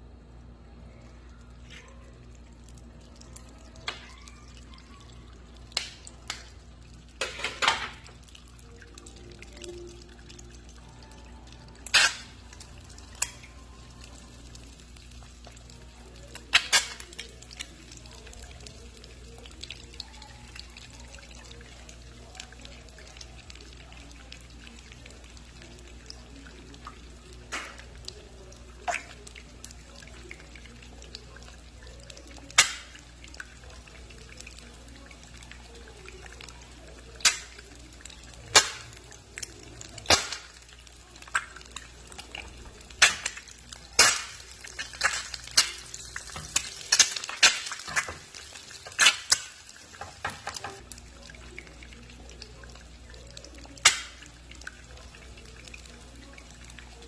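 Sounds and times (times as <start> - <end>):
eggs frying in oil: 0.0 - 57.0
oil spattering pops: 40.0 - 40.7, 42.8 - 50.8.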